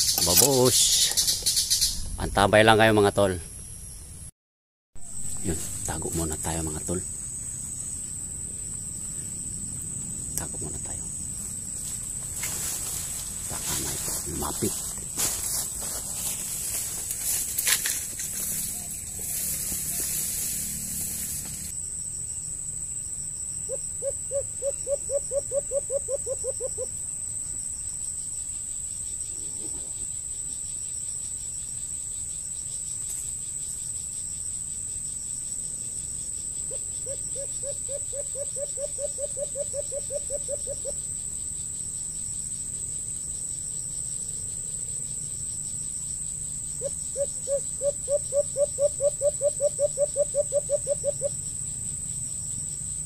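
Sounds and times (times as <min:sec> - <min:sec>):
bird pulsed trills: 0:00.0 - 0:04.2, 0:27.8 - 0:53.0
high-pitched insect drone: 0:00.0 - 0:04.3, 0:05.0 - 0:53.0.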